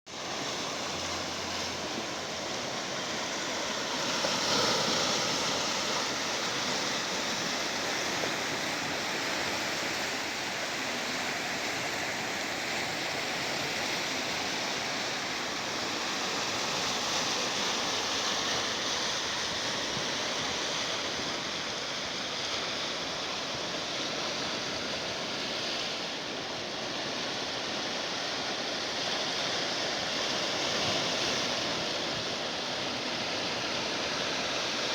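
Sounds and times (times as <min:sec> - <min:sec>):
sea surf washing: 0:00.1 - 0:34.9.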